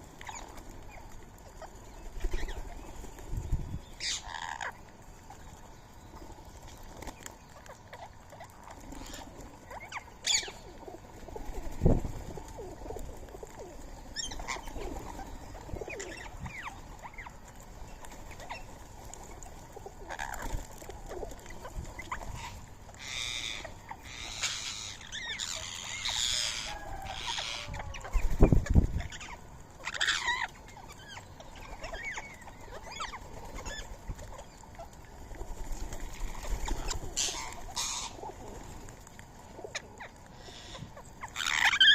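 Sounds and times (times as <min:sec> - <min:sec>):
parakeets screeching: 0:04.0 - 0:04.8, 0:07.6 - 0:10.6, 0:14.2 - 0:17.4, 0:20.0 - 0:35.0, 0:36.2 - 0:38.3, 0:39.7 - 0:41.9.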